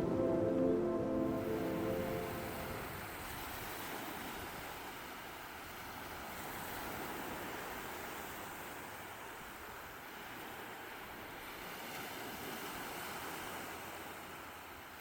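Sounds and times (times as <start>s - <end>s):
water rushing: 0.0s - 3.2s.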